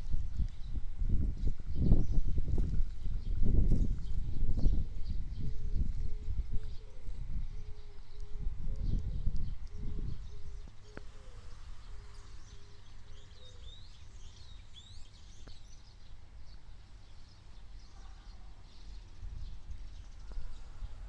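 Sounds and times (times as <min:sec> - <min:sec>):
low microphone rumble: 0:00.0 - 0:15.4, 0:18.8 - 0:21.0
small birds chirping: 0:00.0 - 0:21.0.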